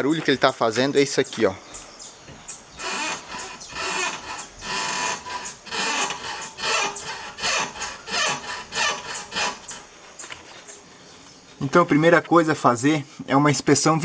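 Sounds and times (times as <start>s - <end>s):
car suspension creaking: 0.0s - 10.4s.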